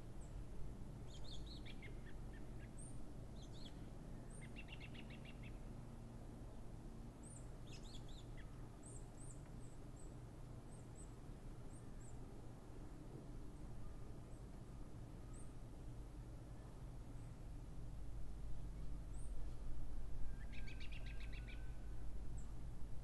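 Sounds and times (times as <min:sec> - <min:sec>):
songbirds chirping: 0:00.1 - 0:05.8, 0:20.4 - 0:22.6
low background rumble: 0:11.3 - 0:23.0.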